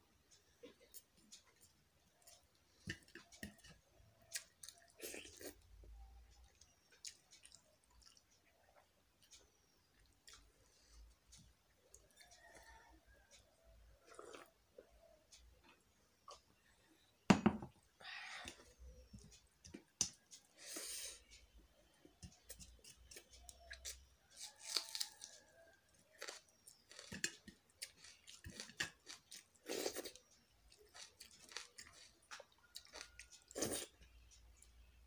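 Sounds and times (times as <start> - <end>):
wet chewing and lip smacking: 6.4 - 10.6.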